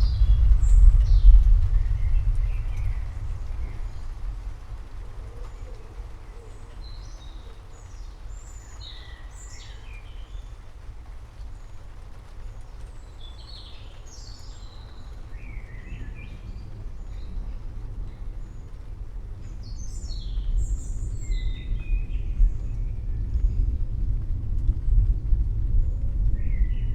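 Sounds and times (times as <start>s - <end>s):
distant thunder rumble: 0.0s - 26.9s
birds chirping: 11.4s - 23.8s.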